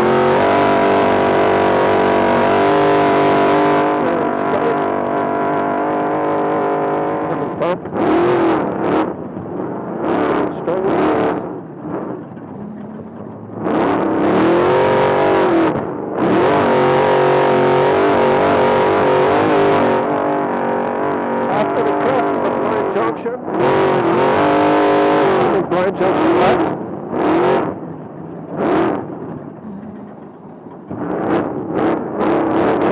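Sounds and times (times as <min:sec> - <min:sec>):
truck engine revving: 0:00.0 - 0:05.0, 0:06.0 - 0:20.3, 0:26.2 - 0:32.9.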